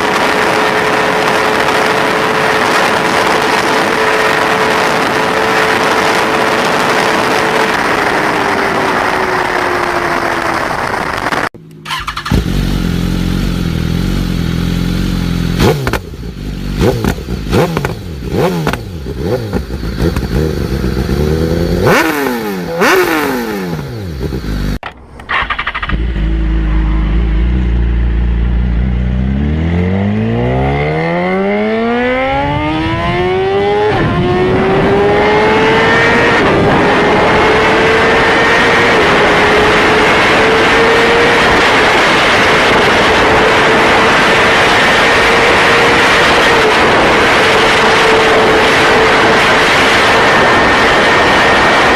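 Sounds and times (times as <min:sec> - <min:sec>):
motorcycle engine revving and accelerating: 0:00.0 - 0:24.8, 0:25.4 - 0:51.9.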